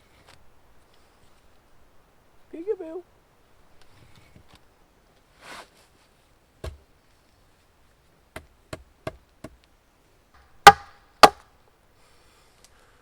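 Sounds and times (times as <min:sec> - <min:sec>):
hatchet striking timber: 0:06.6 - 0:06.8, 0:10.6 - 0:11.4.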